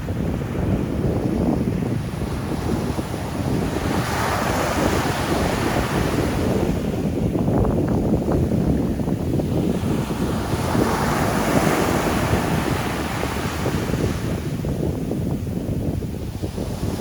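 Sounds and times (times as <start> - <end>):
wind buffeting microphone: 0.0 - 17.0
surf breaking on shore: 1.6 - 14.6.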